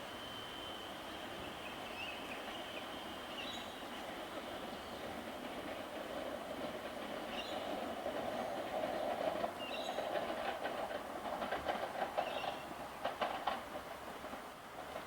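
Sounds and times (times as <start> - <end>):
electric train rumbling past: 0.0 - 15.0.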